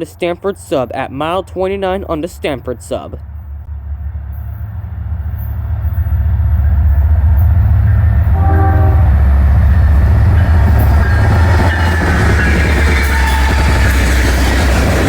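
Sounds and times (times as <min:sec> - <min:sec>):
diesel locomotive engine rumble: 0:00.0 - 0:15.0
train horn tone: 0:07.8 - 0:14.9.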